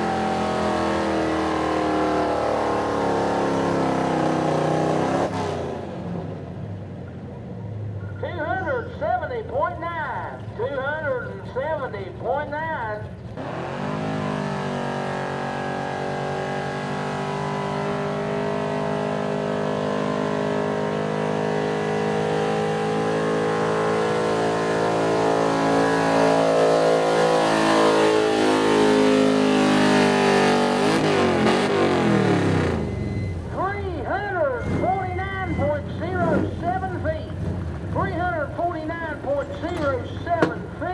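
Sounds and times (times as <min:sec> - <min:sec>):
truck engine at high revs: 0:00.0 - 0:07.4, 0:13.3 - 0:40.9.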